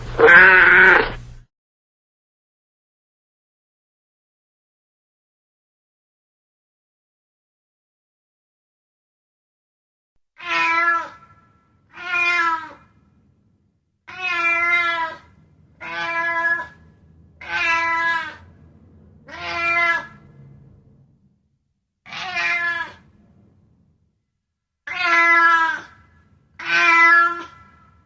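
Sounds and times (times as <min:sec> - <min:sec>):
cat meowing: 0:00.2 - 0:01.2, 0:10.4 - 0:13.0, 0:14.1 - 0:18.6, 0:19.2 - 0:20.4, 0:22.1 - 0:23.2, 0:24.9 - 0:28.0.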